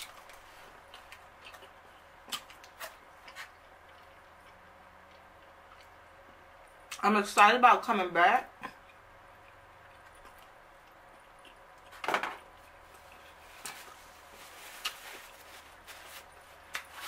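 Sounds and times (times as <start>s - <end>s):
person chewing: 0.0s - 7.0s, 8.6s - 17.0s
paper napkin rustling: 13.4s - 17.0s.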